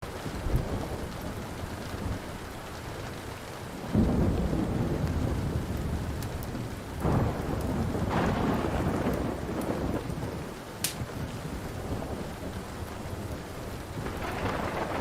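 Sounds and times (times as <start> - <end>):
faint fire crackles: 0.0 - 15.0
steady rain: 0.0 - 15.0
rolling thunder: 3.8 - 15.0.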